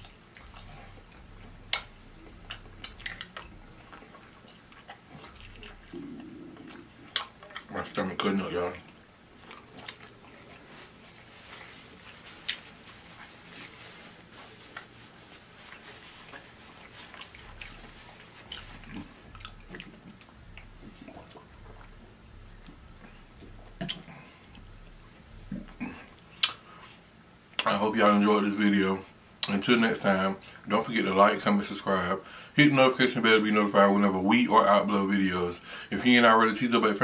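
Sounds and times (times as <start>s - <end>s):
wet mouth clicks and lip smacks: 0.0s - 7.7s, 8.9s - 10.4s, 22.6s - 24.8s, 25.5s - 26.7s
person chewing food: 0.0s - 27.7s.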